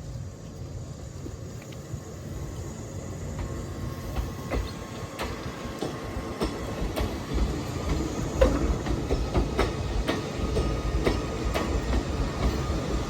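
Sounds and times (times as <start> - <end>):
electric train rolling slowly: 0.0 - 13.0
wheels clicking over rail joints: 3.4 - 13.0.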